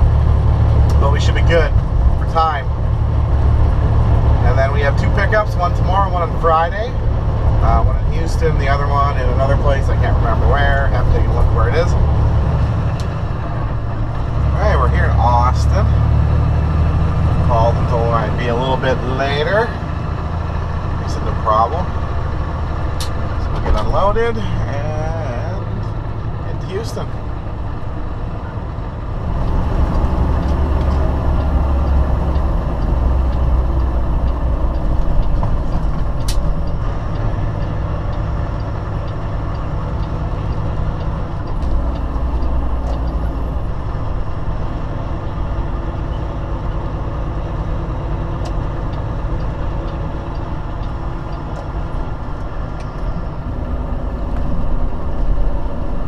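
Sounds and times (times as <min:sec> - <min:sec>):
diesel engine rumbling: 0:00.0 - 0:56.0
sharp click: 0:35.2 - 0:36.8.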